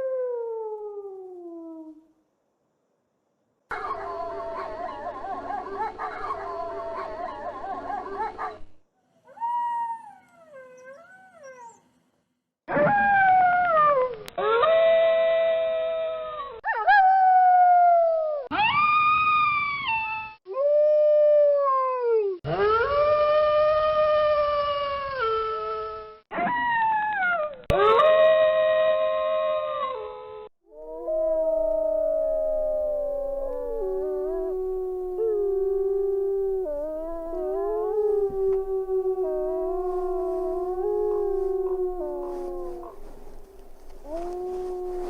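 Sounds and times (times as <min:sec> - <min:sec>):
lone wolf howl: 0:22.5 - 0:45.0
wolves howling in chorus: 0:30.8 - 0:45.0.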